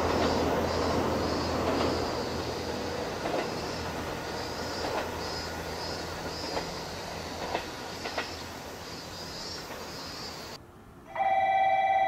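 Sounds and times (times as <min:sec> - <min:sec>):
clacks over rail joints: 0:00.0 - 0:10.2
train running on rails: 0:00.0 - 0:12.0
electric platform bell ringing: 0:11.1 - 0:12.0.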